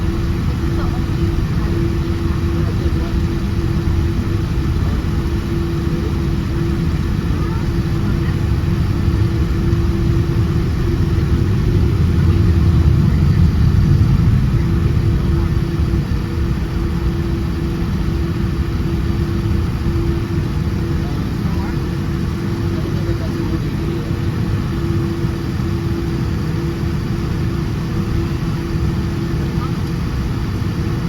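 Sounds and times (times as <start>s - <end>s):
constant hum: 0.0s - 31.0s
jet engine cabin rumble: 0.0s - 31.0s.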